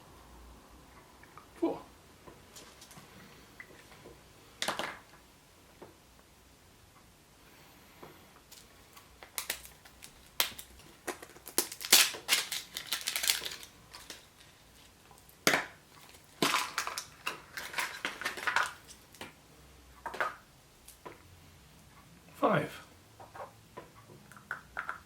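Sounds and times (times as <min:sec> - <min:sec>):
wrapper crinkling: 0:08.5 - 0:19.3.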